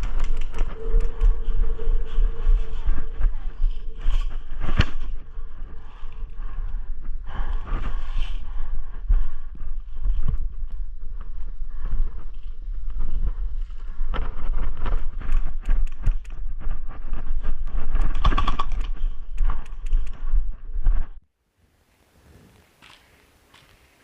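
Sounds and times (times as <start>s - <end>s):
footsteps: 0.0s - 8.4s, 22.3s - 24.0s
wind buffeting microphone: 0.0s - 21.2s.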